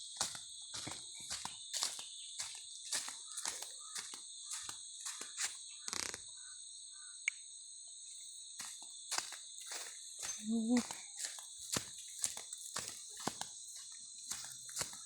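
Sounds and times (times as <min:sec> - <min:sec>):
high-pitched insect chorus: 0:00.0 - 0:15.0
footsteps: 0:00.2 - 0:05.6, 0:08.6 - 0:15.0.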